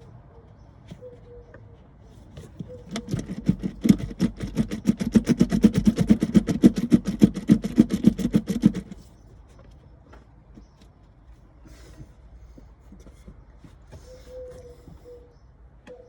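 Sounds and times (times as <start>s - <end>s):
engine cranking on starter motor: 2.8s - 9.1s.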